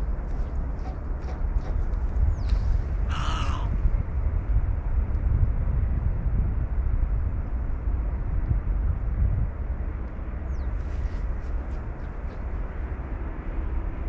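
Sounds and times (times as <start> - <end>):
steady low rumble: 0.0 - 14.0
crow cawing: 3.0 - 3.8.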